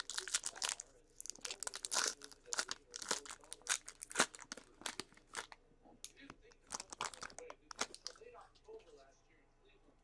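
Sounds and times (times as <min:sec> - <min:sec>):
cards and wrapper rustling: 0:00.0 - 0:05.6, 0:06.6 - 0:08.2.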